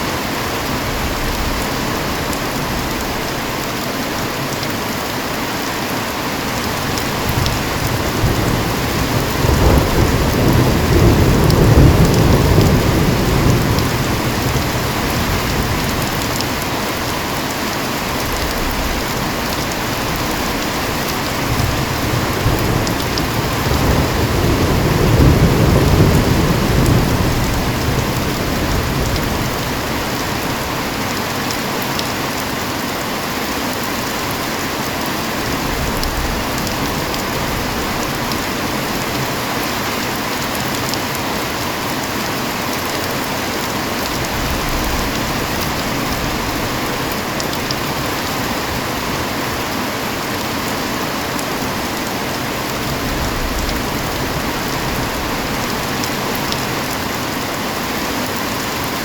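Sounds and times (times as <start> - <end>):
heavy rain hissing: 0.0 - 59.0
low rolling thunder: 0.5 - 4.2, 7.1 - 31.2, 35.3 - 40.8, 44.0 - 49.5, 52.6 - 57.3.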